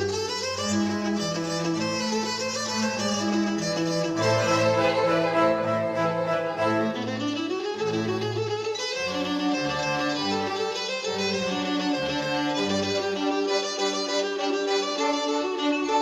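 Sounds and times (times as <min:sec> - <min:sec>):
cello line: 0:00.0 - 0:16.0
violins sustained notes: 0:04.2 - 0:08.4, 0:09.1 - 0:16.0.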